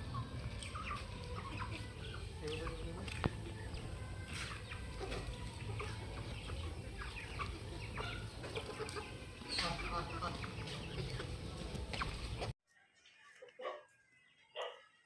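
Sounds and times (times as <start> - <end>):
chickens clucking: 0.0 - 12.5.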